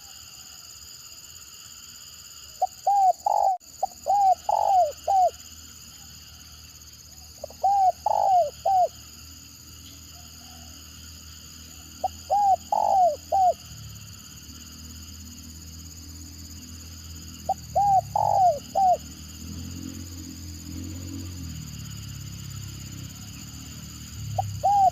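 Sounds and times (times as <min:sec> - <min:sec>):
dove cooing: 0:02.6 - 0:05.4, 0:07.4 - 0:09.0, 0:12.0 - 0:13.6, 0:17.5 - 0:19.1, 0:24.4 - 0:24.9.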